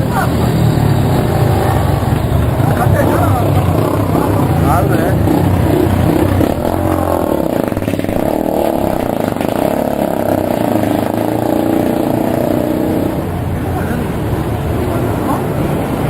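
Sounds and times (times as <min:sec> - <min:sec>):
motorcycle engine running: 0:00.7 - 0:13.5.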